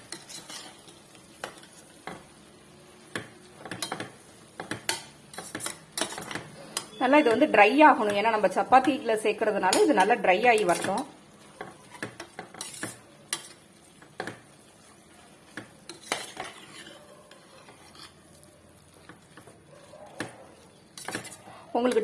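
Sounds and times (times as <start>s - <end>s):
spoon stirring and scraping mince: 0.0s - 22.0s
spoon clinking against pan: 3.2s - 8.2s.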